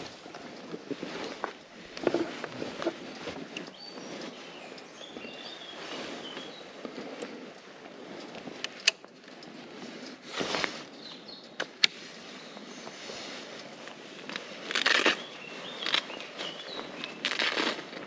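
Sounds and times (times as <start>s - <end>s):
steady outdoor hiss: 0.0s - 18.0s
faint bird chirps: 3.7s - 6.8s
sharp clicks: 8.2s - 9.6s, 11.4s - 12.1s.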